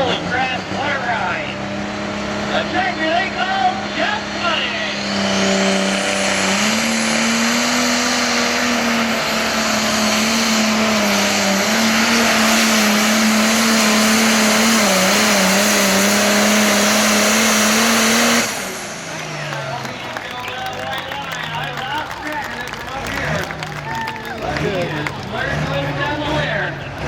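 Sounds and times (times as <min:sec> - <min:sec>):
tractor diesel engine at full throttle: 0:00.0 - 0:27.0.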